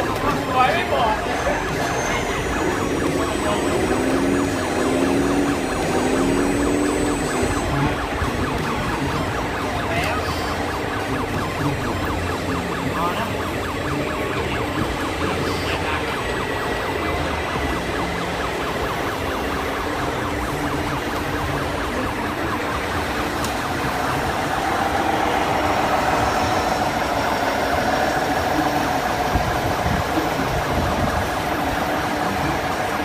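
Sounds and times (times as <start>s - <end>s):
steady tone: 0.0s - 33.0s.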